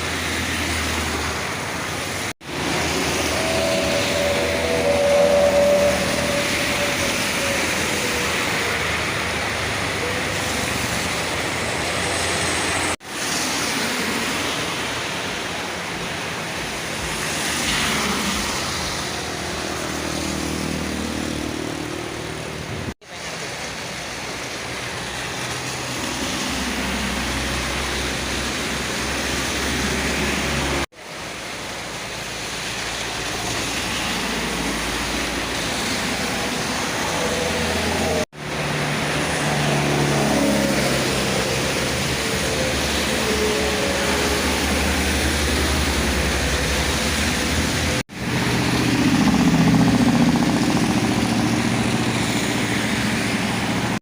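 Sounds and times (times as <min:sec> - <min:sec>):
heavy rain hissing: 0:00.0 - 0:54.0
tyres on wet road: 0:00.0 - 0:54.0
truck engines running: 0:14.6 - 0:54.0.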